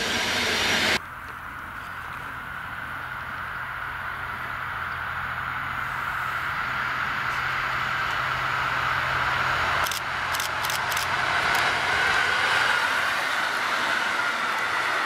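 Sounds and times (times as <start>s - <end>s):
electric train running: 0.0s - 15.0s
sharp clicks: 9.8s - 11.7s.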